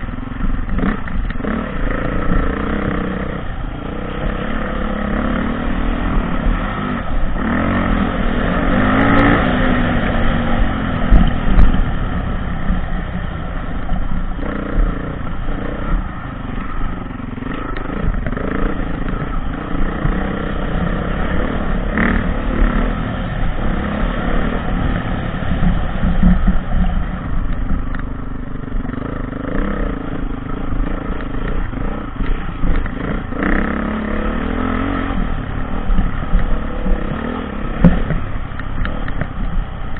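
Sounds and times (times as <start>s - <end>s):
dirt bike engine revving: 0.0s - 27.5s, 28.7s - 39.5s.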